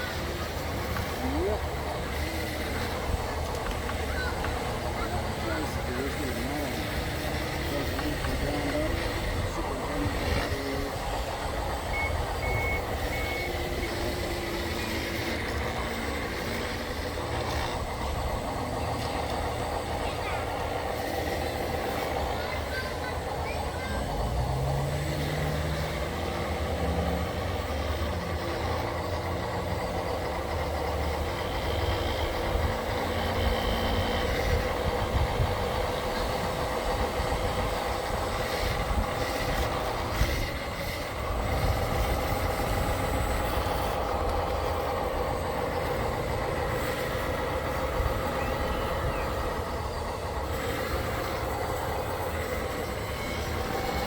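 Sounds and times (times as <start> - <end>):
motor and hydraulic whine: 0.0 - 54.0.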